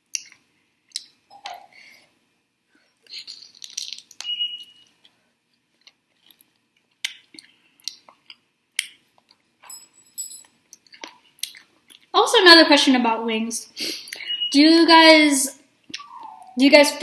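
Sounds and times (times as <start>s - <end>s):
person chewing and lip-smacking: 0.1s - 1.7s, 5.8s - 9.4s, 10.8s - 12.1s.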